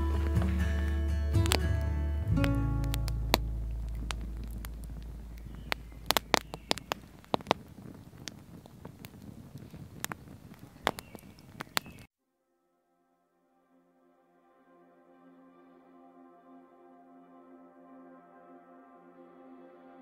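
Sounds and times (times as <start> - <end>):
campfire crackling and popping: 0.0 - 12.1.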